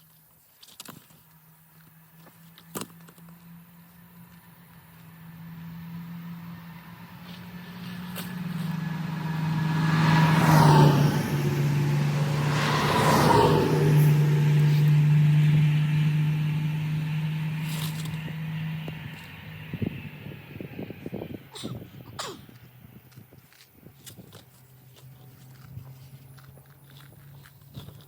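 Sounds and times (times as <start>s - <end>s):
tractor engine humming: 1.2s - 28.0s
loud swells of noise: 8.7s - 17.6s.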